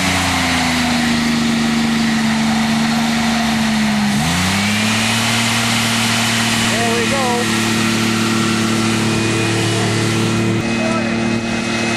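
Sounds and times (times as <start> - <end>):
car engine revving high: 0.0 - 11.9.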